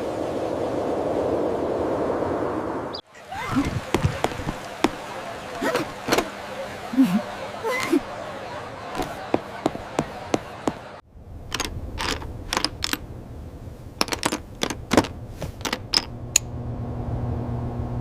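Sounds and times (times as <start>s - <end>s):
low steady hum: 11.1s - 18.0s.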